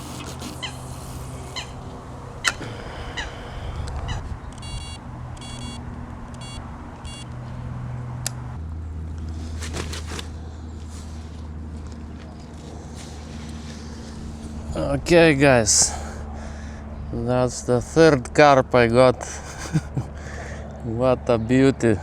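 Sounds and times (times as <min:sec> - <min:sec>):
bird calling: 0:00.0 - 0:07.4
steady low hum: 0:00.0 - 0:22.0.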